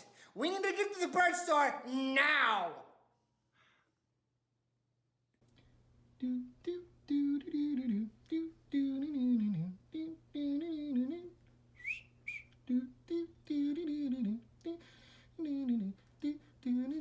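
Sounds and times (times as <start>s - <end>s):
person humming: 6.2s - 11.4s, 12.6s - 17.0s.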